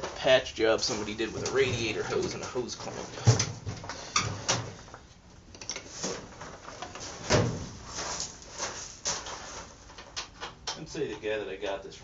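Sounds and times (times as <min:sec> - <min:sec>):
hand tools and metal parts clattering: 0:00.8 - 0:04.8.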